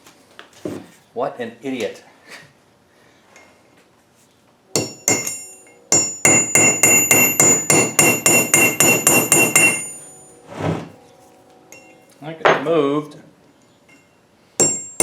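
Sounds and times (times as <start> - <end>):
hammer striking chisel on metal: 4.8 - 10.2, 14.6 - 15.0.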